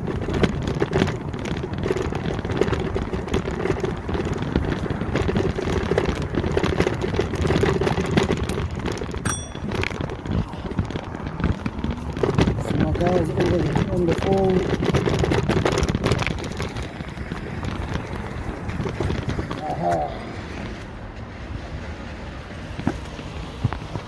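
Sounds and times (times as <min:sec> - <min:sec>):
wind rushing over microphone: 0:00.0 - 0:21.7
street traffic noise: 0:00.0 - 0:24.0.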